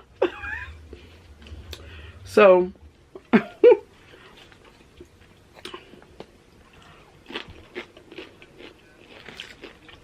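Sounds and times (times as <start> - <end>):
person chewing crunchy chips: 4.0 - 10.0.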